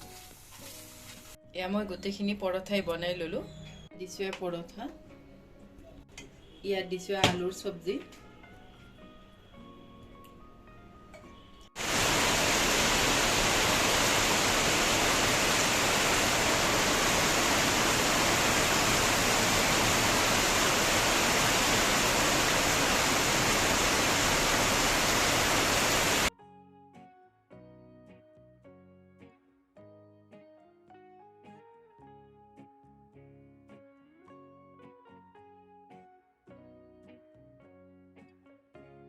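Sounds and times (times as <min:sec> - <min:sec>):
soft background music: 0:00.0 - 0:11.8, 0:26.3 - 0:39.0
heavy rain pouring: 0:11.8 - 0:26.3.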